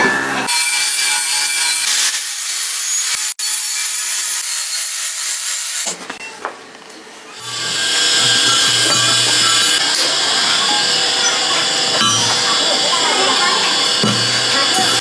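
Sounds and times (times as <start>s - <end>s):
tool rasping: 7.4s - 15.0s.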